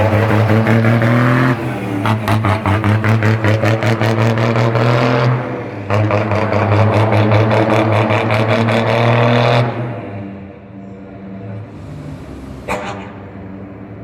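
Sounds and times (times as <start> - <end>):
truck exhaust horn droning: 11.0 - 14.0.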